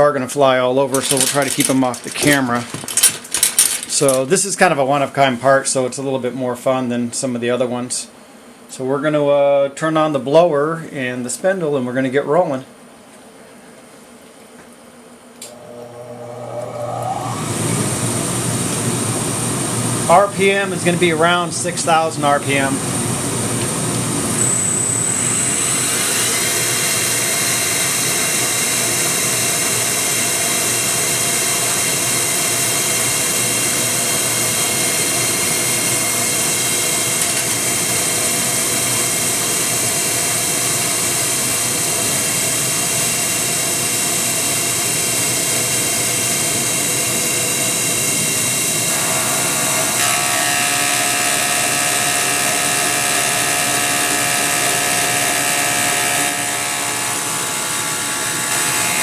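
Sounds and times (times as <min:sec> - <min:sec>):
milling machine spindle whining: 0:15.4 - 0:43.5, 0:48.0 - 0:59.0
air blower hissing: 0:15.4 - 0:59.0.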